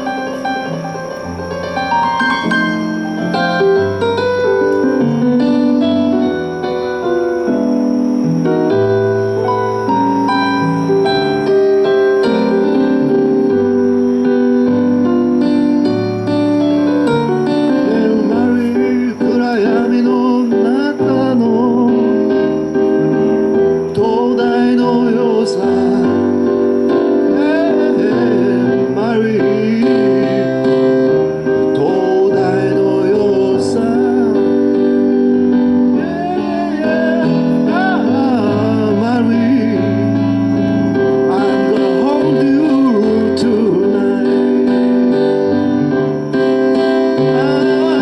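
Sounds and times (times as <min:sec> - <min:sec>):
wavering lead melody: 0:00.0 - 0:20.1
sustained keyboard chords: 0:00.0 - 0:48.0.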